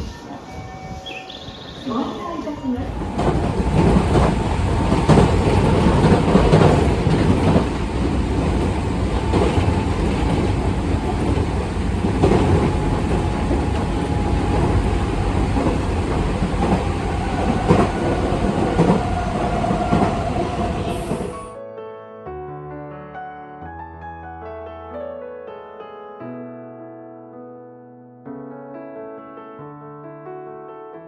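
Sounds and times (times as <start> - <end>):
train rumble: 0.0 - 21.6
wheels clicking over rail joints: 1.8 - 21.5.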